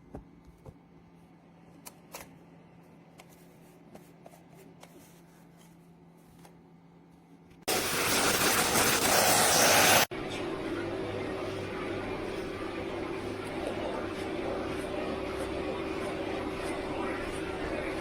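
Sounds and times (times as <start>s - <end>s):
loud rushing noise: 7.7s - 10.1s
low steady hum: 10.1s - 18.0s.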